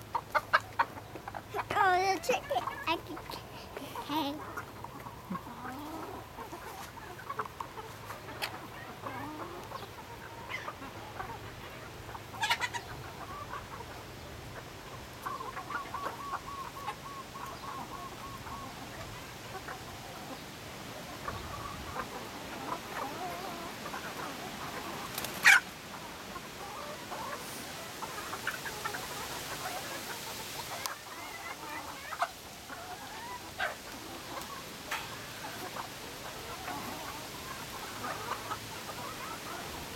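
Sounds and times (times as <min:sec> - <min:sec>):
chickens clucking: 0:00.0 - 0:39.9
loud sharp chicken call: 0:25.4 - 0:25.7.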